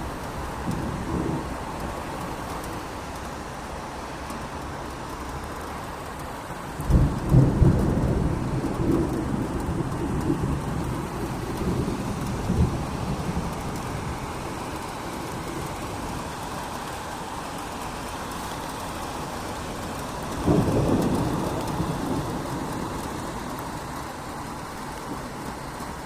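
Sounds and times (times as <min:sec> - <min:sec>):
steady rain falling: 0:00.0 - 0:26.0
thunder clap rumbling: 0:00.6 - 0:01.6, 0:06.8 - 0:16.2, 0:19.6 - 0:25.8.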